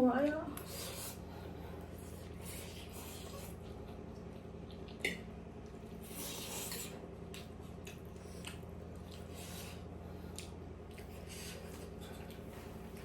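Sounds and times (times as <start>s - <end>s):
steady low hum: 0.0s - 13.0s
chewing and squishing of food: 0.5s - 13.0s.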